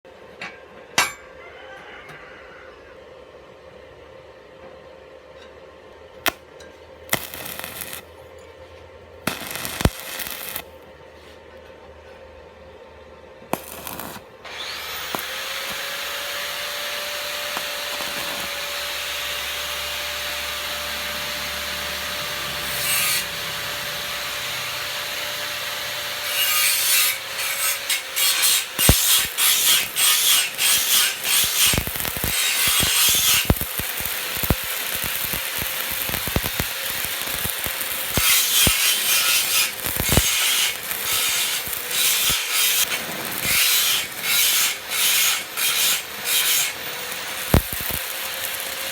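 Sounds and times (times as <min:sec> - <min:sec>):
power tool grinding metal: 0:07.1 - 0:08.0, 0:09.3 - 0:10.6, 0:13.6 - 0:48.9.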